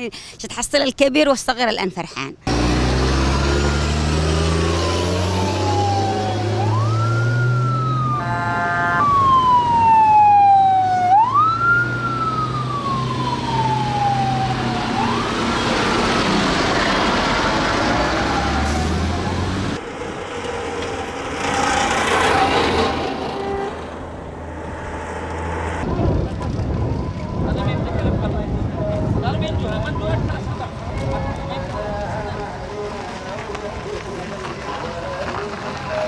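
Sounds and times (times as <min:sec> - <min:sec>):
heavy vehicle engine running: 0:02.5 - 0:08.2, 0:14.2 - 0:29.2
vehicle siren wailing: 0:03.2 - 0:31.6
horn blast: 0:07.8 - 0:09.3, 0:21.8 - 0:26.0.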